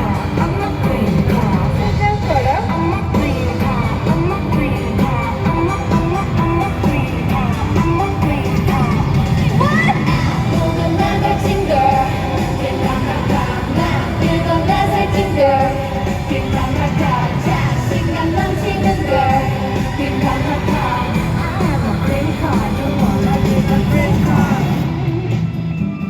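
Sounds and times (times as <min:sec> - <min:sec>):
group singing pop song: 0:00.0 - 0:25.6
loud backing track over speakers: 0:00.0 - 0:26.0.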